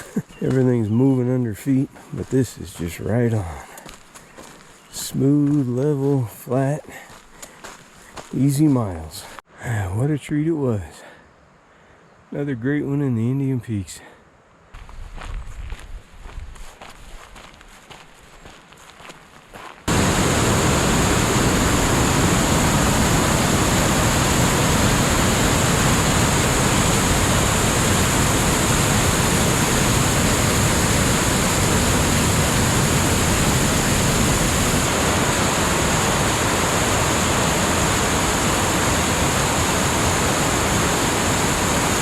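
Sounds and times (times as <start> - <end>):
waterfall roaring: 19.9 - 42.0.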